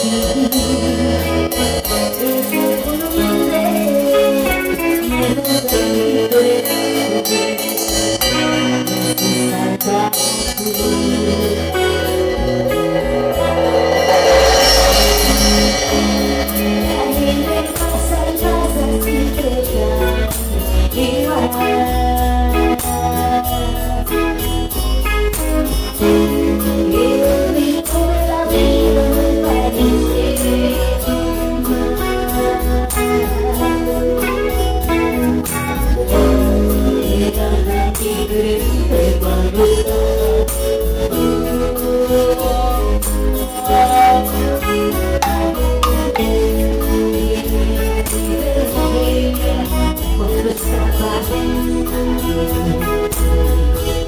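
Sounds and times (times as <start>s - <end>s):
bass line: 0.0s - 6.9s, 7.9s - 54.0s
live band playing: 0.0s - 54.0s.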